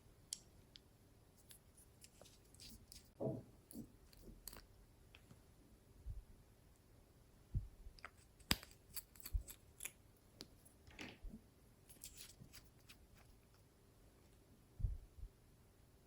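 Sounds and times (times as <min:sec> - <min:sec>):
soft low thumps: 0:07.5 - 0:07.9, 0:14.8 - 0:15.4.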